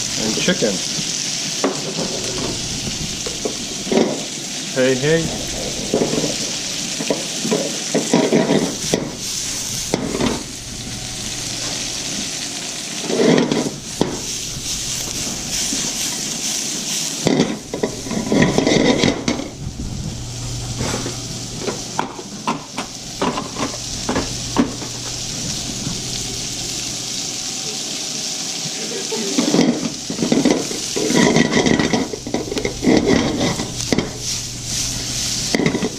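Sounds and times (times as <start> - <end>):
food sizzling in a pan: 0.0 - 35.9
utensil scraping and clattering on pan: 1.0 - 10.6, 13.0 - 19.6, 20.7 - 26.2, 29.3 - 35.9.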